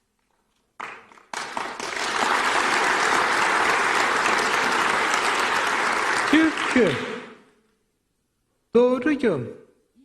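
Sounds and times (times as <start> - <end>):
audience applauding: 0.8 - 7.4.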